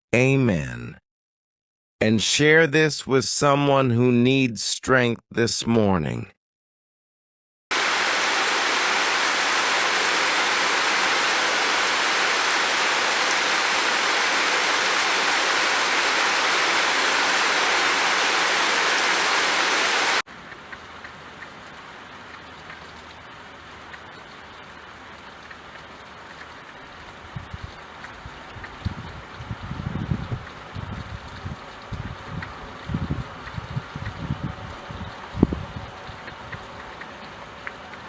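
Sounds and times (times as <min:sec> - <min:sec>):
heavy rain: 0:07.7 - 0:38.0
scattered raindrops: 0:07.7 - 0:38.0.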